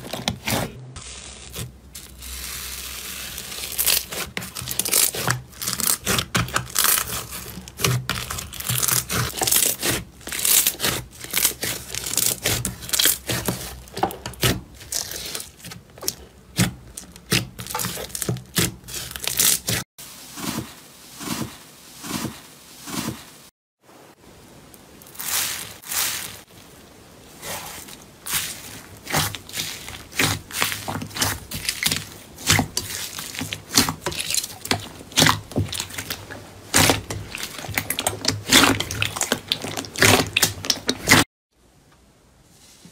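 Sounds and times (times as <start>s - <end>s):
slime squelching: 0.0s - 23.2s, 25.0s - 41.3s
slime crackling and popping: 1.0s - 19.8s, 27.5s - 41.2s.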